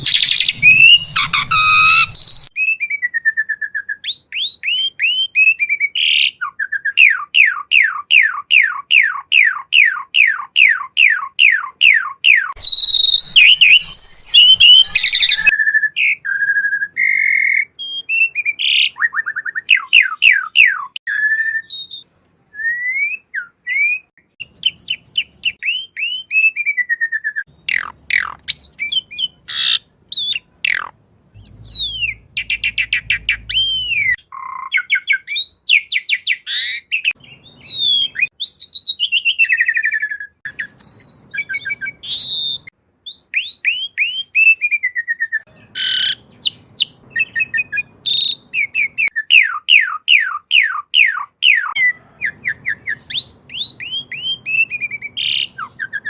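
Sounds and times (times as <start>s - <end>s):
starling singing: 0.0s - 2.6s, 7.0s - 16.1s, 27.4s - 39.9s, 45.5s - 56.0s.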